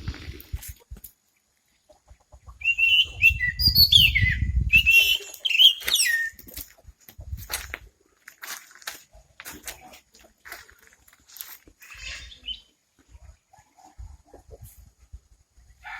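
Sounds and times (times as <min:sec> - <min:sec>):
bird whistled chirps: 0:02.6 - 0:06.4.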